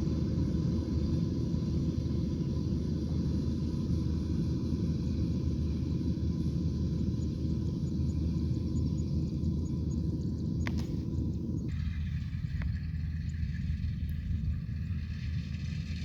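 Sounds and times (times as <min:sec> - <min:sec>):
combine harvester engine rumbling: 0:00.0 - 0:16.0.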